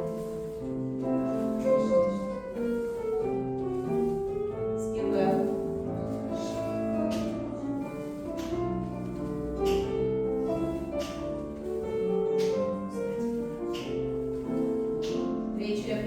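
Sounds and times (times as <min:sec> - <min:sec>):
slow classical piano music: 0:00.0 - 0:16.0.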